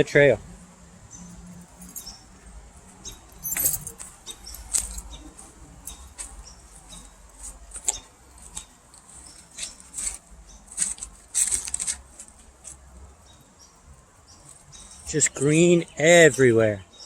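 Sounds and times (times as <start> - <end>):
footsteps on leaves and twigs: 2.8 - 13.4.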